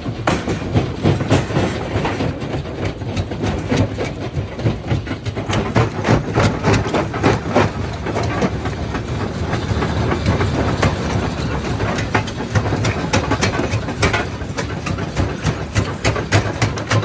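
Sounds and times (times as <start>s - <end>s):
jaw crusher rumbling: 0.0s - 17.0s.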